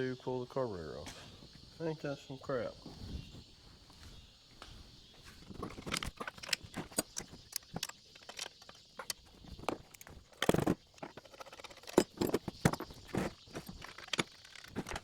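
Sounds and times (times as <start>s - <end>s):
hand tools clicking and knocking: 5.5s - 15.0s.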